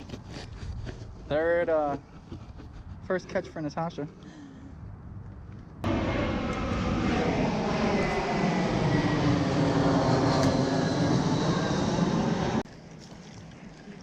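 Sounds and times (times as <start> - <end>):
airplane engine whining: 3.6 - 12.7.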